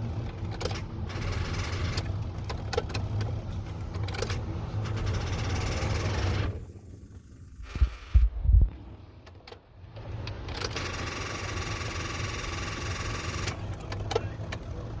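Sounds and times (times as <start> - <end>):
low steady rumble: 0.0 - 11.8.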